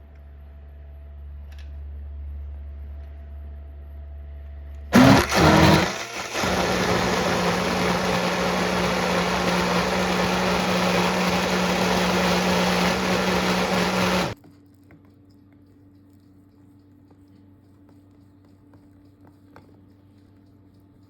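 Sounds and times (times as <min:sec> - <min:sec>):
electric motor humming: 0:05.0 - 0:14.4.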